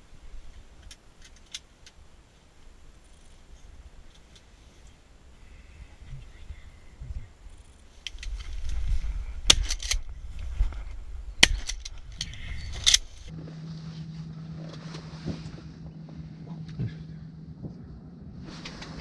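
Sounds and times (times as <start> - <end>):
steady low hum: 0.0 - 19.0
low rumble: 4.8 - 19.0.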